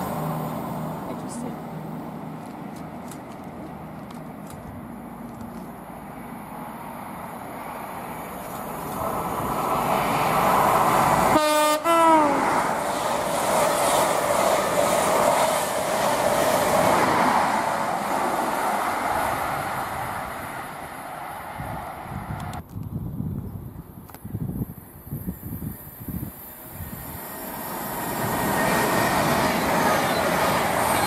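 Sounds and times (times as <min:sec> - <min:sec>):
train passing at speed: 0:00.0 - 0:22.6, 0:24.3 - 0:31.0
two-tone train horn: 0:11.3 - 0:12.6.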